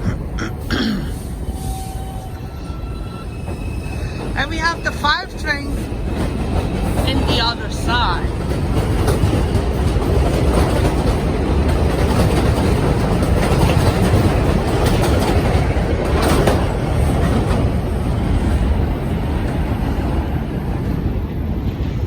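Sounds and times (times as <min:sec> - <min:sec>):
subway train rumbling: 0:00.0 - 0:22.0
wheels clacking over rail joints: 0:04.2 - 0:18.0.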